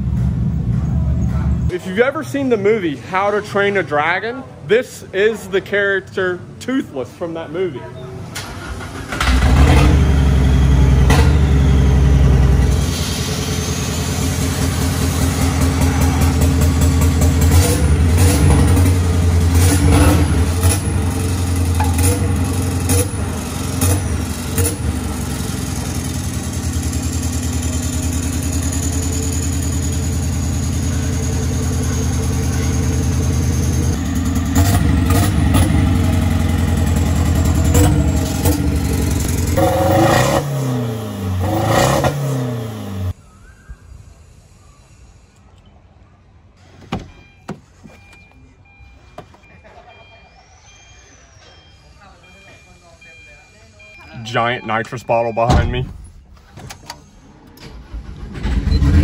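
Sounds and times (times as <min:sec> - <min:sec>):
diesel truck engine revving: 0:08.3 - 0:43.2, 0:57.2 - 0:59.0.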